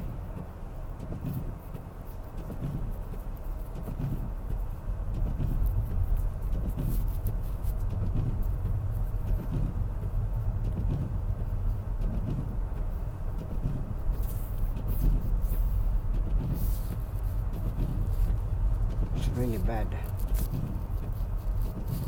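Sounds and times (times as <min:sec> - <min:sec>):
tyre and engine rumble in car: 0:00.0 - 0:22.0.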